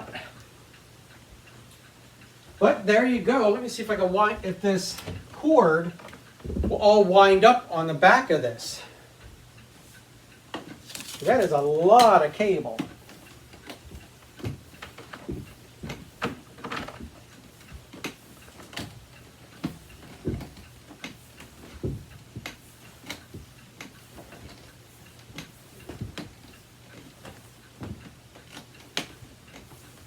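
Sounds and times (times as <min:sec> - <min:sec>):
cord clicking against plastic: 0:10.5 - 0:30.0.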